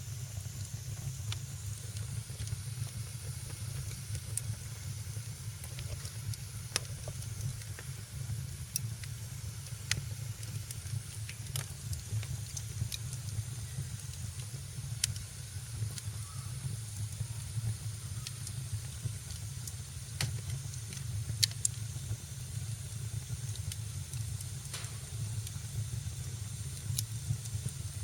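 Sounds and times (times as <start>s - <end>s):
low rumble of flame: 0.0s - 28.0s
fire popping: 0.1s - 28.0s.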